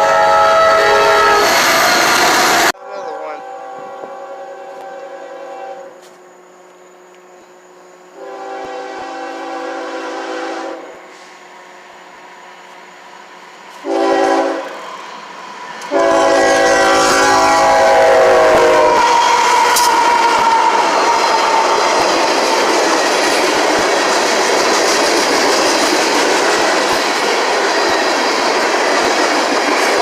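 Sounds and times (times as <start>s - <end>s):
locomotive air horn blasts: 0.0s - 6.0s, 8.2s - 11.3s, 13.8s - 14.8s, 15.9s - 20.7s
train rumble: 0.0s - 30.0s.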